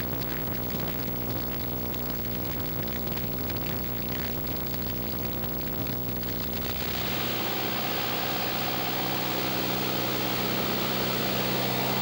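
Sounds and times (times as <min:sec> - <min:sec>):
plane engine and propeller drone: 0:06.7 - 0:12.0
electronic music: 0:06.8 - 0:12.0.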